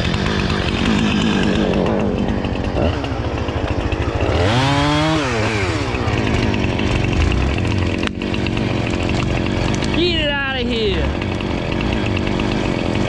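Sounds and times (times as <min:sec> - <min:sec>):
chainsaw cutting and revving: 0:00.0 - 0:13.0.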